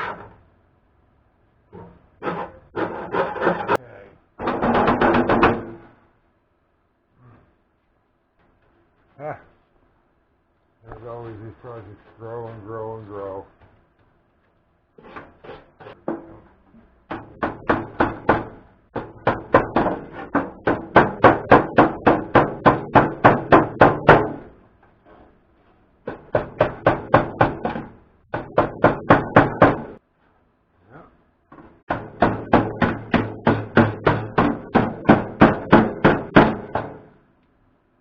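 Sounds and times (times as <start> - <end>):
hammering on sheet metal: 4.4 - 5.9, 17.0 - 24.6, 26.0 - 30.0, 31.8 - 37.2.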